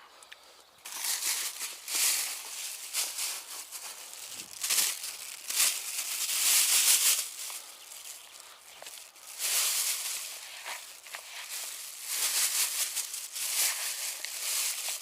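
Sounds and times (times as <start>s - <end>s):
rustling and crinkling: 0.3s - 15.0s.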